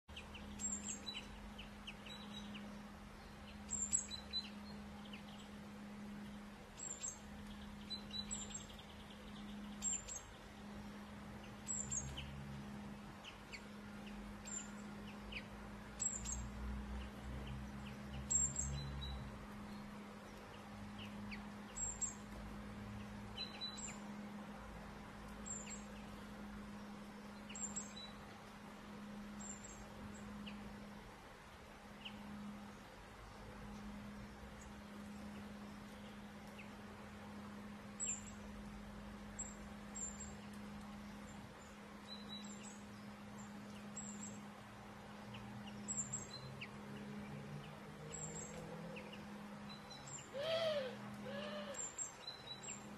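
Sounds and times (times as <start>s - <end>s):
low hum: 0.1s - 52.9s
songbird chirping: 0.1s - 52.9s.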